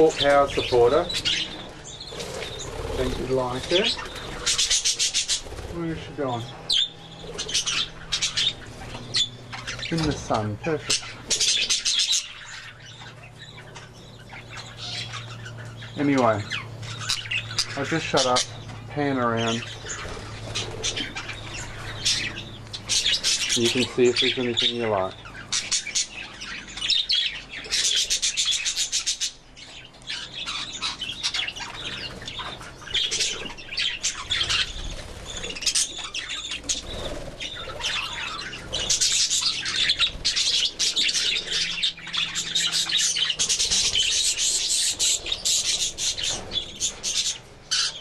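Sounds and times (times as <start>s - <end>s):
wing flapping: 0.0s - 12.4s, 19.5s - 23.9s, 31.2s - 47.6s
budgerigars chattering: 0.0s - 48.0s.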